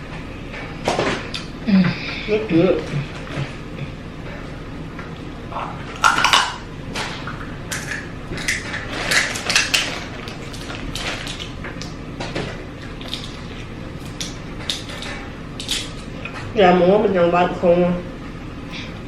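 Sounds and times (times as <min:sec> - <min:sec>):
eating by hand: 0:05.1 - 0:16.5
crab shells snapping: 0:06.0 - 0:06.6, 0:07.7 - 0:12.0, 0:12.8 - 0:16.1.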